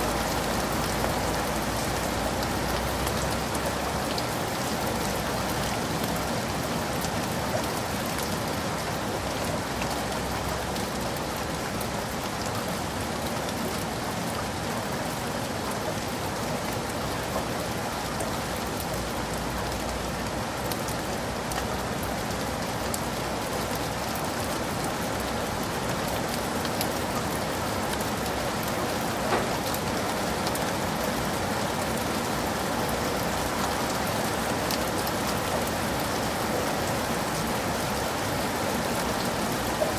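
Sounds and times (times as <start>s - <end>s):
heavy rain hiss: 13.8s - 39.9s
raindrops ticking: 16.0s - 39.9s.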